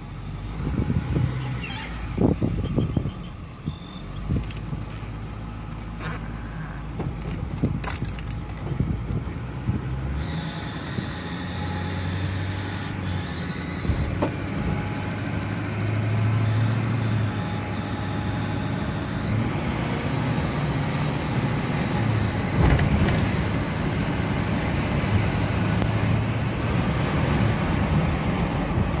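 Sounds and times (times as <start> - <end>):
high-pitched squeal: 0.0 - 4.0, 10.1 - 18.6
diesel engine running: 0.0 - 29.0.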